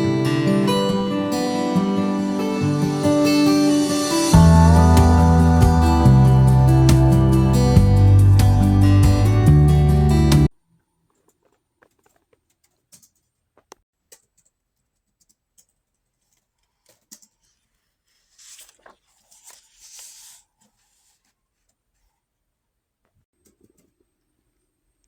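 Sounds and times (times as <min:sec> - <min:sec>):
rustling or scraping: 0:10.8 - 0:13.8, 0:16.0 - 0:22.2.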